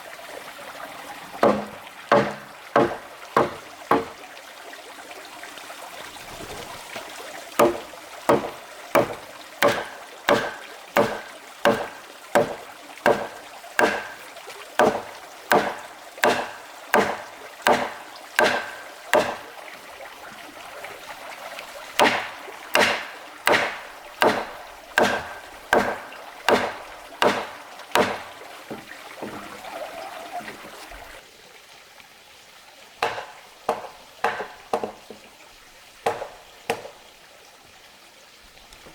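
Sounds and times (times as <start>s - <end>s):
wood being chopped: 1.4s - 4.2s, 7.6s - 19.6s, 22.0s - 29.6s, 33.0s - 35.2s, 36.1s - 37.0s.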